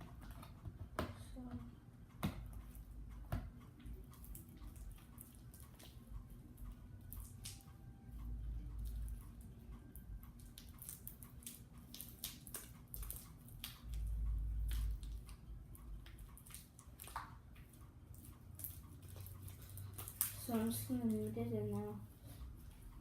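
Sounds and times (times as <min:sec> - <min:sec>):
slime squelching and crackling: 0:04.1 - 0:06.0, 0:07.0 - 0:07.6, 0:10.4 - 0:22.0.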